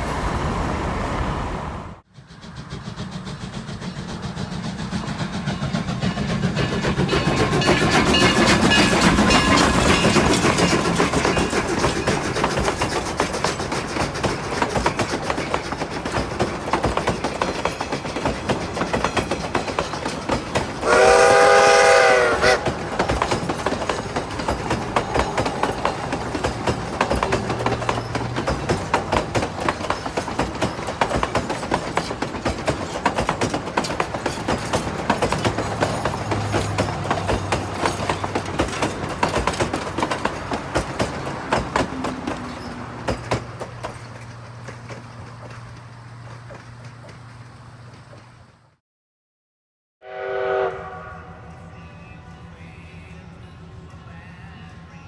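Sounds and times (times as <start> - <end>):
train wheels clattering: 2.2 - 48.7
steam locomotive whistle: 20.8 - 23.3, 50.0 - 53.2.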